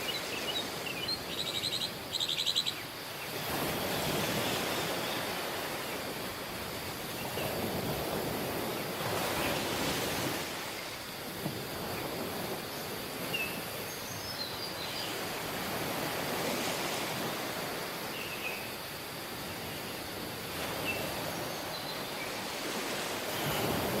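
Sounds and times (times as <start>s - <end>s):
faint bird chirps: 0.0s - 2.9s
surf washing onto beach: 3.0s - 13.9s, 14.7s - 18.2s, 19.0s - 24.0s.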